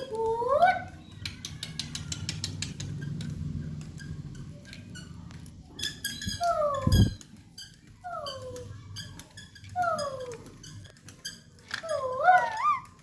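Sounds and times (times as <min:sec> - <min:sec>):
light clicks and taps: 0:00.9 - 0:05.6
parrot squeaky chirps: 0:09.8 - 0:13.0.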